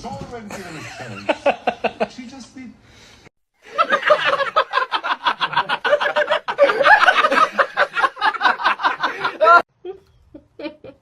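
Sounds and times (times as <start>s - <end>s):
person laughing hard: 3.8s - 9.6s.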